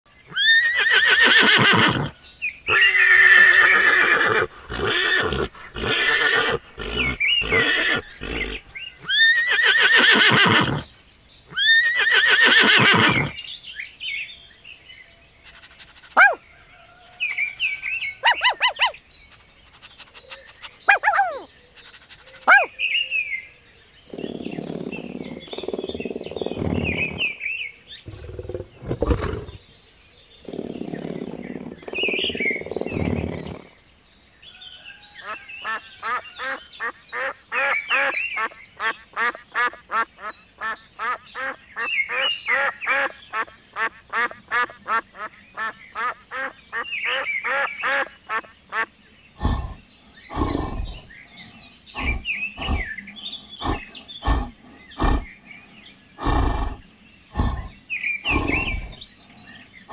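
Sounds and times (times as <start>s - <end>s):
birds chirping: 0.1s - 59.9s
horses whinnying: 0.3s - 10.9s, 11.6s - 13.4s, 16.1s - 16.4s, 18.2s - 19.0s, 20.9s - 21.5s, 22.4s - 22.7s, 24.1s - 27.4s, 28.1s - 29.6s, 30.5s - 33.6s, 49.4s - 51.1s, 52.0s - 52.9s, 53.6s - 55.3s, 56.2s - 59.0s
small dog yelping: 16.0s - 16.4s, 18.2s - 19.0s, 20.9s - 21.5s, 22.3s - 22.7s.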